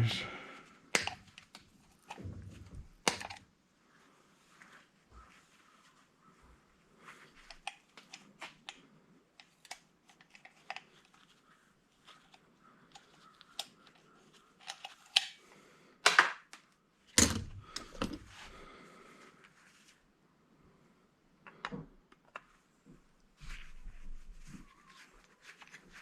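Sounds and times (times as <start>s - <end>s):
light clicks and taps of tools: 0.9s - 2.2s, 7.3s - 11.4s, 12.0s - 15.4s.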